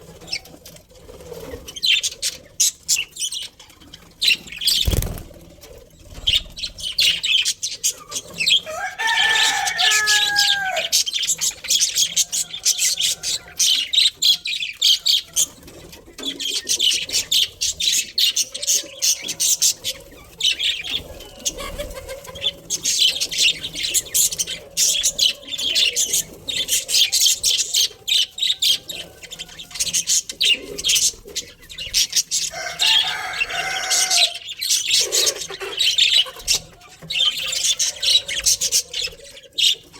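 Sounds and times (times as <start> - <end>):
budgerigars chattering: 1.6 - 39.9.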